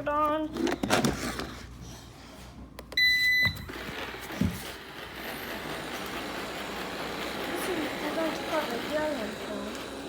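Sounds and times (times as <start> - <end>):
robot vacuum beep: 3.0 - 3.8
vacuum fan and brushes running: 3.6 - 10.0.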